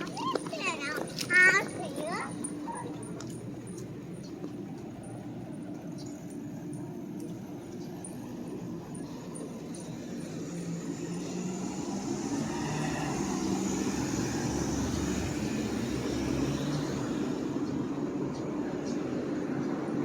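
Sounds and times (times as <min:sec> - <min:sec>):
vehicle passing by: 0:08.4 - 0:20.0.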